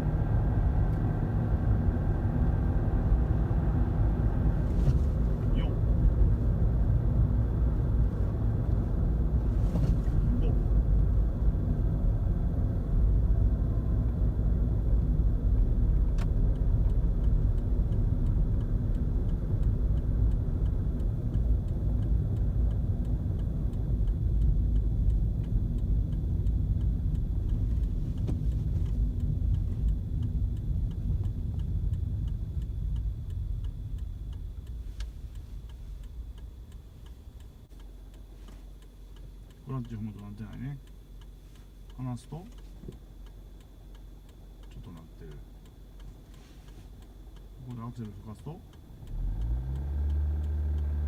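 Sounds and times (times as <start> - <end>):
car engine and road rumble: 0.0 - 51.0
faint regular ticking: 10.7 - 51.0.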